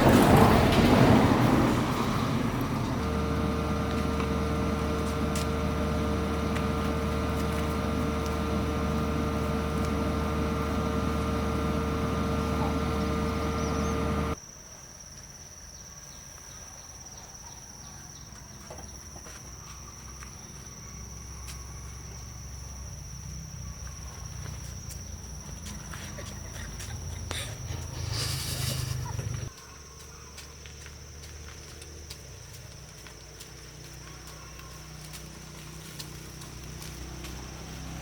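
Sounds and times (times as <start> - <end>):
motor droning: 0.0 - 14.4, 18.2 - 29.6, 30.7 - 38.0
insects trilling: 0.0 - 38.0.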